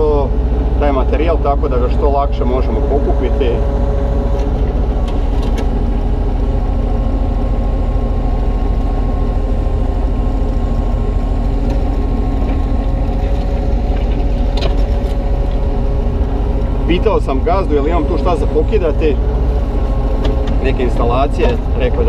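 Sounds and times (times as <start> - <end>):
excavator diesel engine running: 0.0 - 22.0
steady whine: 0.0 - 22.0.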